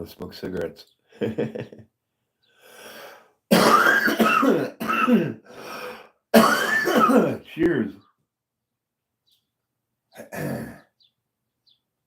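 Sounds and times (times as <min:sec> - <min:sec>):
breath: 0:02.4 - 0:03.4, 0:05.4 - 0:06.2
man coughing: 0:03.5 - 0:05.5, 0:06.4 - 0:07.8, 0:10.2 - 0:10.8.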